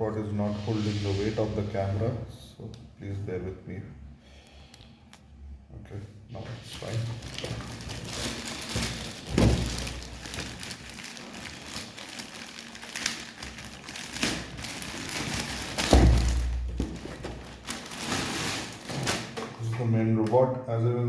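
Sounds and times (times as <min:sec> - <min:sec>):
packaging rustling: 0:06.6 - 0:19.6
box thudding: 0:15.8 - 0:17.5.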